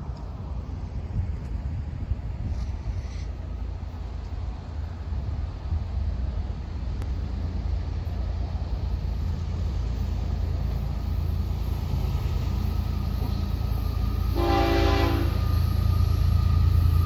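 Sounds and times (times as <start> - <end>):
freight train rumbling: 0.0 - 17.0
locomotive air horn chord: 14.3 - 15.5.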